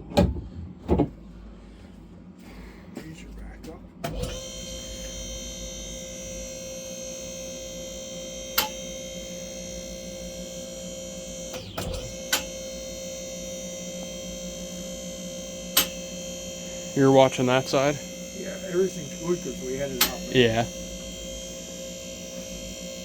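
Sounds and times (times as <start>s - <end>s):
hydraulic lift whine: 3.9s - 23.0s.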